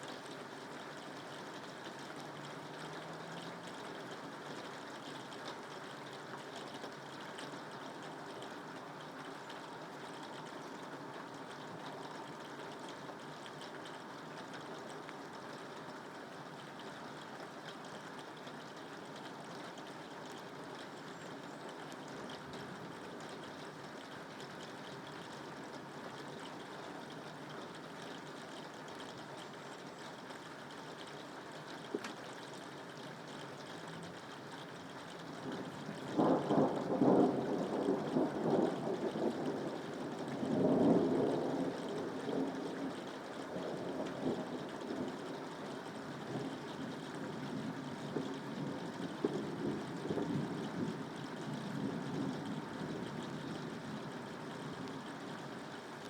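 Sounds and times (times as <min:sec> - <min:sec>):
rain falling: 0:00.0 - 0:56.0
thunder rumbling: 0:35.8 - 0:45.7, 0:47.3 - 0:54.4.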